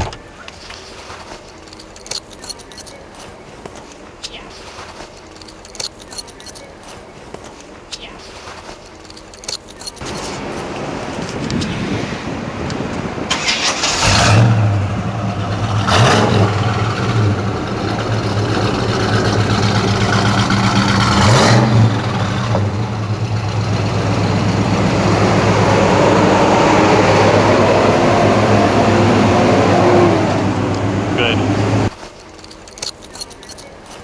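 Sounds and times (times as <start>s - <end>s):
car engine starting and idling: 8.9s - 34.0s
engine revving: 10.0s - 31.9s.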